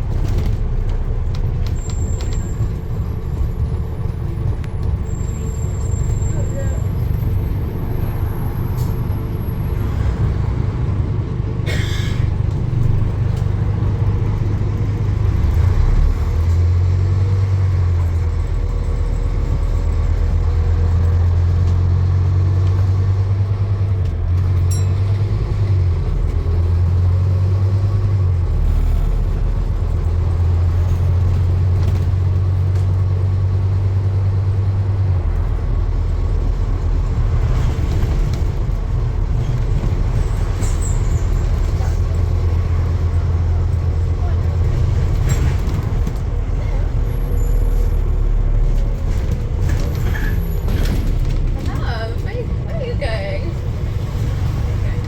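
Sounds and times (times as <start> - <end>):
vehicle engine rumbling: 0.0 - 55.0.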